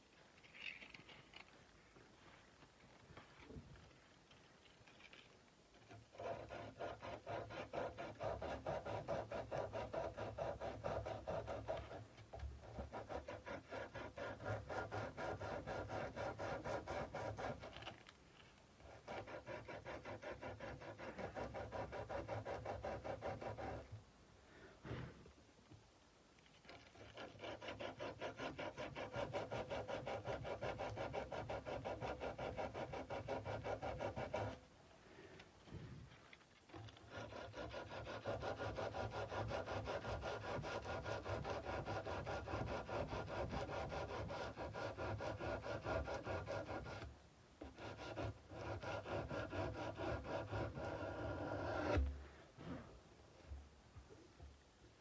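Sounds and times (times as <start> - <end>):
sandpaper rubbing steel blade: 6.1 - 18.0, 18.9 - 23.9, 26.9 - 34.6, 37.0 - 47.1, 47.7 - 52.0.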